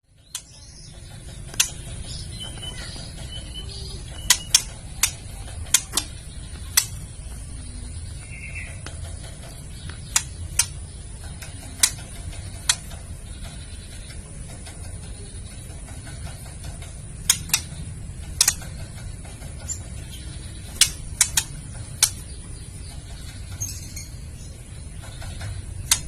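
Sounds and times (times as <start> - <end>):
low steady hum: 0.1 - 26.0
bird giving harsh ticking call: 0.3 - 7.4, 8.2 - 14.1, 17.2 - 24.1.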